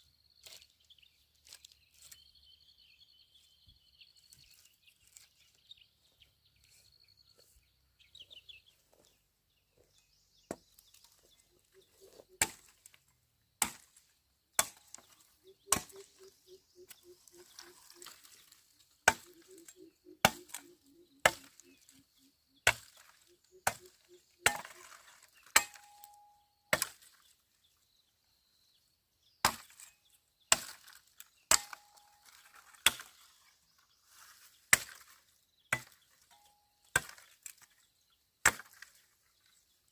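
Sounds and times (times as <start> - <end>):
blade chopping bamboo: 13.6 - 14.0, 14.6 - 16.2, 19.0 - 19.6, 20.2 - 21.9, 22.7 - 27.1, 30.5 - 33.2, 34.7 - 36.0, 36.9 - 37.6, 38.5 - 39.0.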